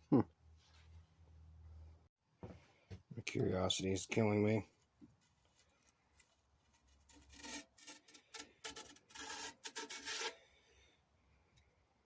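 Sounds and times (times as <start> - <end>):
metal parts scraping: 6.9 - 10.4.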